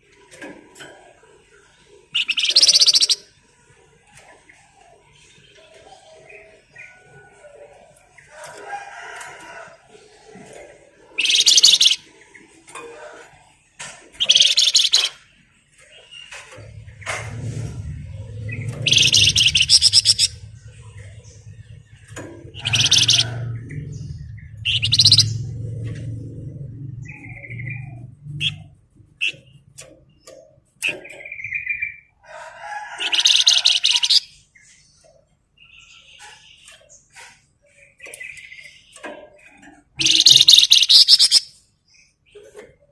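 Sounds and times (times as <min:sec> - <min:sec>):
songbird chirping: 0:00.4 - 0:42.9
fast rattling bird trills: 0:02.1 - 0:03.3, 0:11.2 - 0:12.1, 0:14.2 - 0:15.2, 0:18.0 - 0:25.9, 0:32.9 - 0:34.4, 0:38.0 - 0:41.6
songbird chattering notes: 0:02.1 - 0:03.3, 0:11.2 - 0:12.0, 0:14.2 - 0:15.2, 0:18.6 - 0:21.6, 0:22.4 - 0:25.6, 0:40.0 - 0:41.6
bird rattling trill: 0:02.2 - 0:03.2, 0:11.2 - 0:12.0, 0:14.2 - 0:15.2, 0:18.8 - 0:20.4, 0:22.5 - 0:23.5, 0:24.6 - 0:25.6, 0:40.0 - 0:41.5
low hum: 0:16.5 - 0:29.6.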